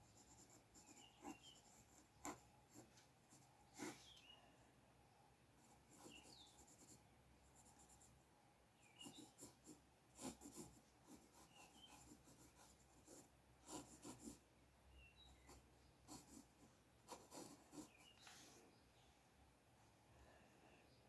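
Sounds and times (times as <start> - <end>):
drawing tool scratching paper: 0.1 - 2.9, 9.0 - 14.4, 17.1 - 18.3.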